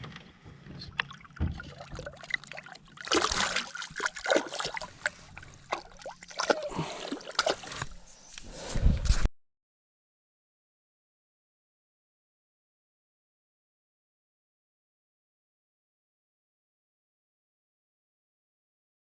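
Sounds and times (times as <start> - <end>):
water splashing beside boat: 0.1 - 8.0.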